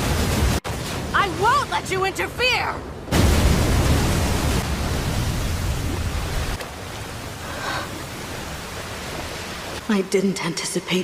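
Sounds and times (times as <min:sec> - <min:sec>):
rumbling explosion blast: 0:03.1 - 0:05.8.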